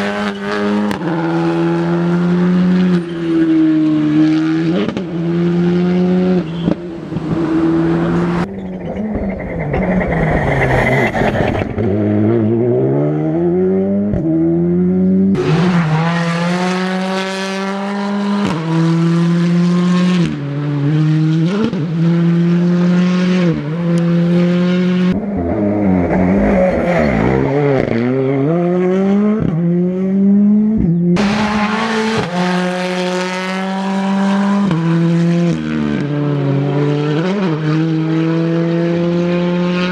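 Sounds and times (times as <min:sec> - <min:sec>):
cars braking: 0:00.0 - 0:12.2, 0:31.2 - 0:35.1
rally car engines at high revs: 0:00.0 - 0:39.9.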